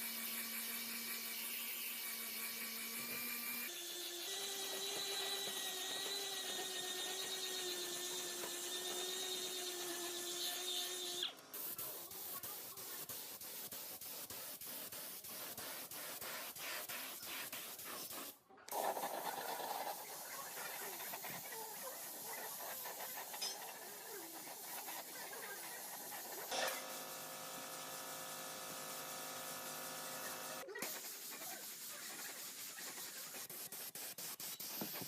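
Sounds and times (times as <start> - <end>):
power tool motor whining: 0.0 - 11.4.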